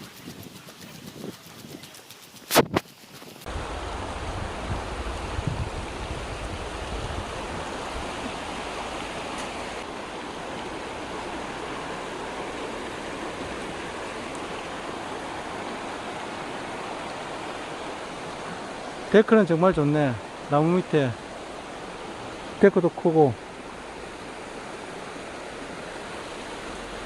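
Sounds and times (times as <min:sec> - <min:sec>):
wind buffeting microphone: 0:00.0 - 0:08.8
stream water rushing: 0:00.0 - 0:27.0.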